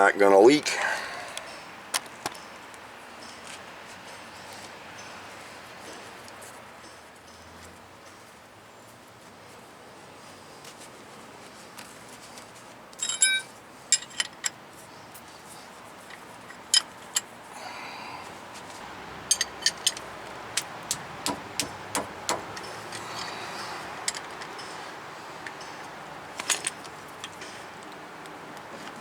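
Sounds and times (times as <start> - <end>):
metal tools clicking and clinking: 13.0 - 14.6, 16.1 - 17.3, 19.2 - 24.8, 25.4 - 27.6.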